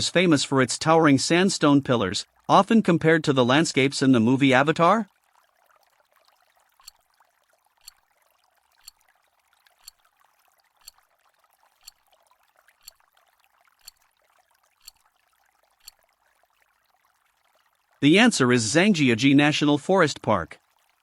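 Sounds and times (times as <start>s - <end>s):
timer ticking: 6.8s - 7.0s, 7.8s - 8.0s, 8.8s - 9.0s, 9.8s - 10.0s, 10.8s - 11.0s, 11.8s - 12.0s, 12.8s - 13.0s, 13.8s - 14.0s, 14.8s - 15.0s, 15.8s - 16.0s.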